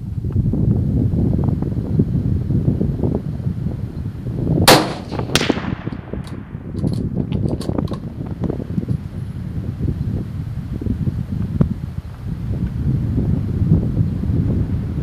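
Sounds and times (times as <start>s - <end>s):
wind on microphone: 0.0s - 15.0s
rifle shot with ringing echo: 4.7s - 6.8s.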